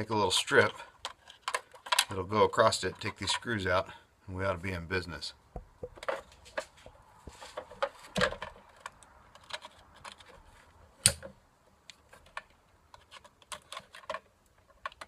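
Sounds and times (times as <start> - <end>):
small parts clicking and tapping: 0.6 - 2.2, 11.0 - 15.0.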